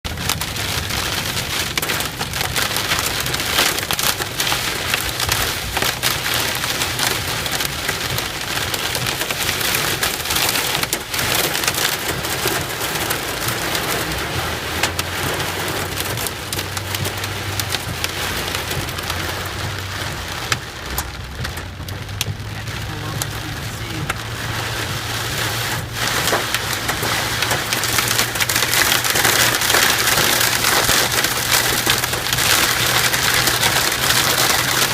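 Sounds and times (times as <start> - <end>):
heavy rain patter: 0.0 - 34.9.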